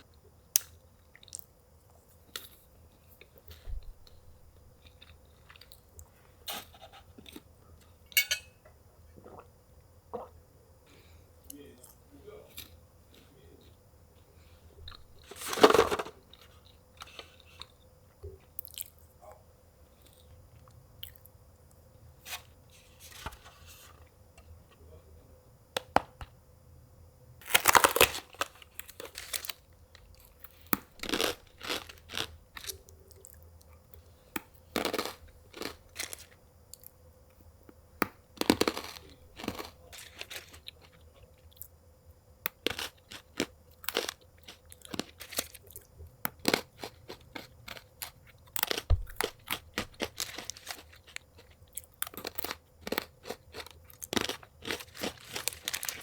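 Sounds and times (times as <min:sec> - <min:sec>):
person crunching and chewing food: 0:00.6 - 0:07.5, 0:11.8 - 0:17.8, 0:18.4 - 0:19.2, 0:19.9 - 0:21.3, 0:27.4 - 0:36.9, 0:38.3 - 0:41.8, 0:42.5 - 0:56.0.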